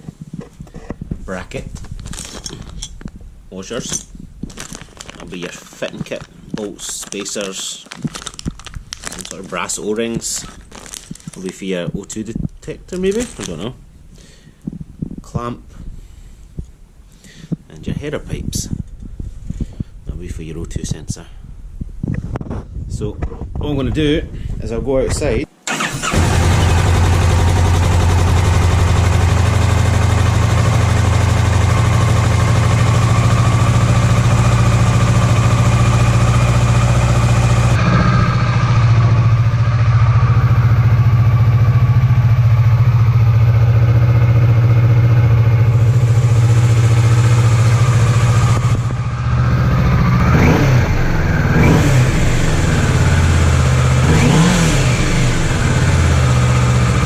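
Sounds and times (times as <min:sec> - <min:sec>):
motorcycle engine idling and revving: 0:25.8 - 0:57.0.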